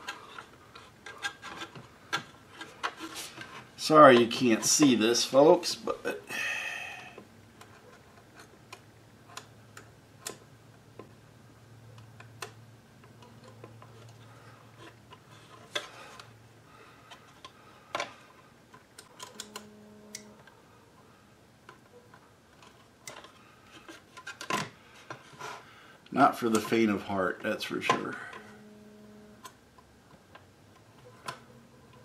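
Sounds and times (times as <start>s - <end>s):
plastic parts clicking: 0.0s - 4.7s, 17.0s - 20.5s, 21.6s - 25.4s, 26.4s - 26.7s
faint steady hum: 0.0s - 32.0s.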